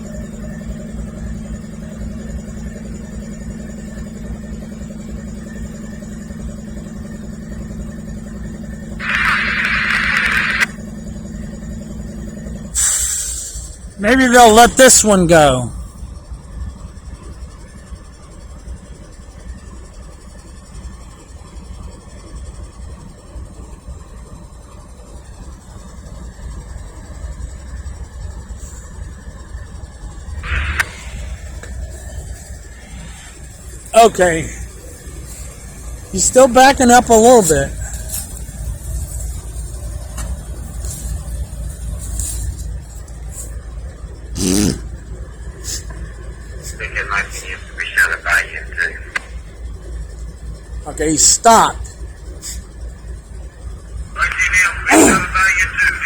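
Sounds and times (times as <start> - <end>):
faint high whine: 0.0 - 13.0, 29.4 - 44.3
diesel locomotives idling: 0.0 - 56.0
loud hiss: 12.8 - 13.8, 30.4 - 31.9.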